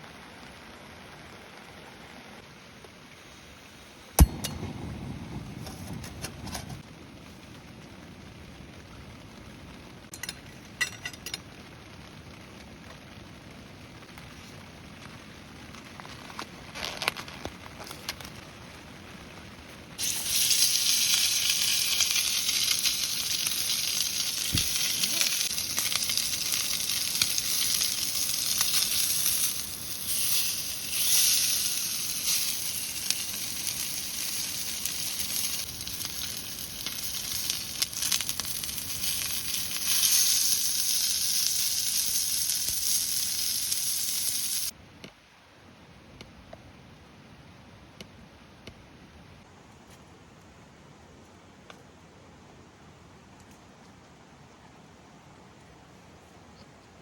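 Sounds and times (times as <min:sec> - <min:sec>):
food sizzling in a pan: 0:20.0 - 0:44.8.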